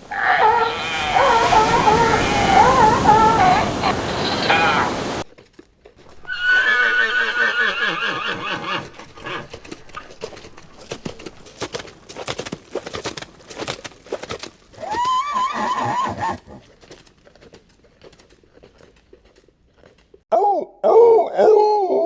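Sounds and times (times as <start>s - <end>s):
horse whinnying: 0.0s - 5.2s, 6.3s - 8.8s, 14.8s - 16.5s
low wavering animal call: 0.0s - 5.2s
horse hooves clopping: 8.8s - 15.2s, 16.5s - 20.2s.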